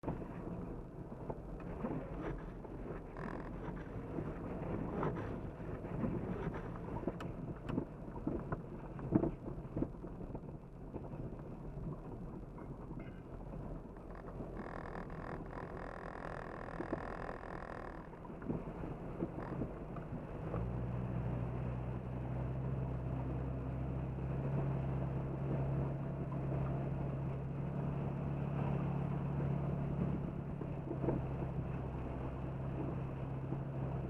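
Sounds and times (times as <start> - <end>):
engine rumble: 0.0 - 34.0
steady whine: 13.8 - 20.2.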